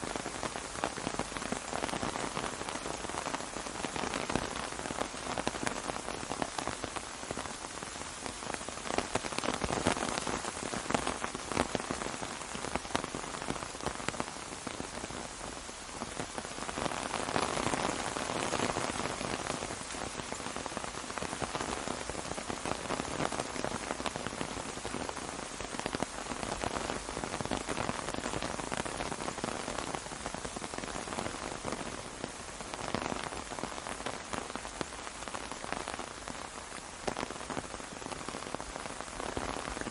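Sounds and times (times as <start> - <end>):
rain pattering on an umbrella: 0.0 - 39.9.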